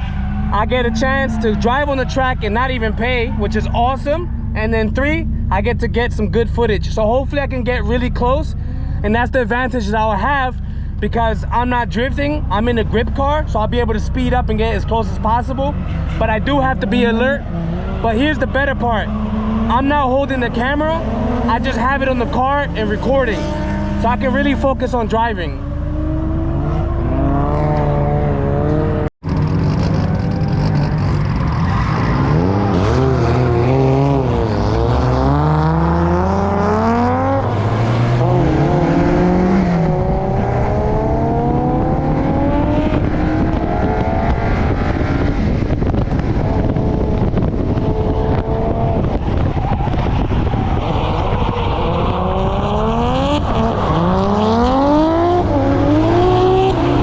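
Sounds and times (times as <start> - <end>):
car engine revving through gears: 14.2 - 24.7, 25.6 - 57.0.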